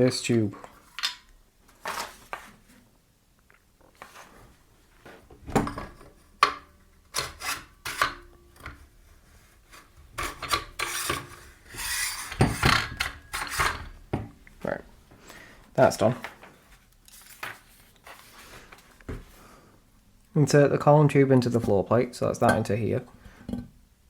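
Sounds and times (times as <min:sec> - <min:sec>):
metal scraping and rubbing: 0:07.1 - 0:14.0.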